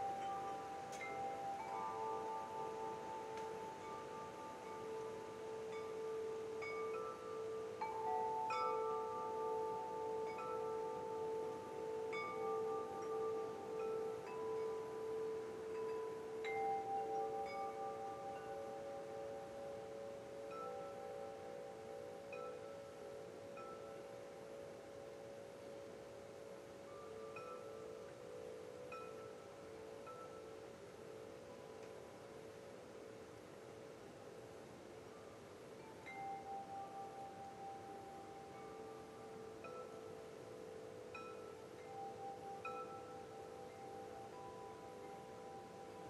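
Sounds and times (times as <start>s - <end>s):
soft steady hiss: 0.0s - 46.0s
wind chimes ringing: 0.0s - 46.0s.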